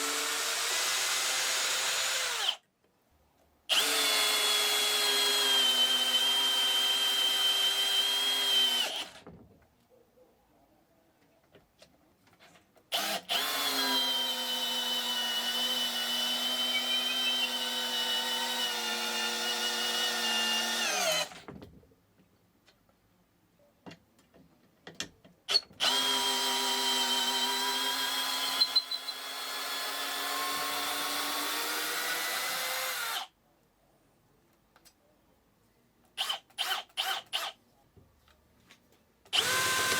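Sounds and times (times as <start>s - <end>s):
cordless drill whining: 0.0s - 2.6s, 3.7s - 9.2s, 12.9s - 21.4s, 25.5s - 33.3s, 39.3s - 39.9s.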